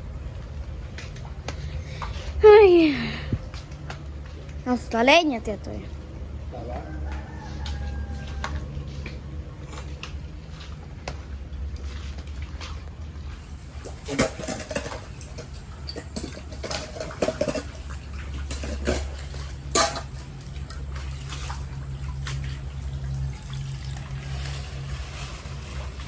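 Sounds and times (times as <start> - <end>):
floodwater sloshing and splashing: 0.0 - 26.0
steady low rumble: 0.0 - 26.0
sharp splashes or knocks: 9.9 - 26.0.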